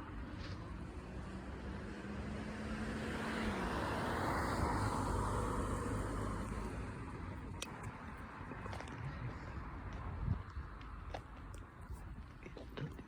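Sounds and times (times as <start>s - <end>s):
vehicle passing by: 0.2s - 7.5s.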